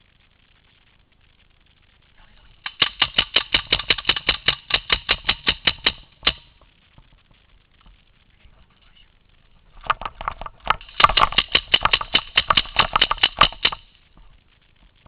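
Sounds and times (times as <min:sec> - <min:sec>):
paintball marker shots: 0:02.6 - 0:06.6, 0:10.7 - 0:13.9.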